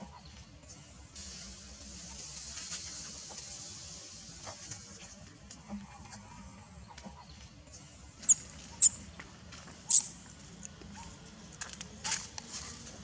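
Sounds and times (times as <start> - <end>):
baby monkey squeaking: 8.3 - 9.0, 9.9 - 10.2.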